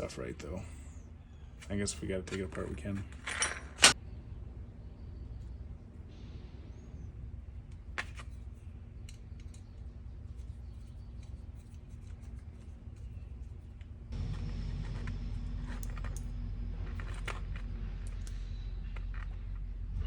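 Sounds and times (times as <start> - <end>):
low steady hum: 0.0 - 20.0
metal scraping: 14.1 - 20.0.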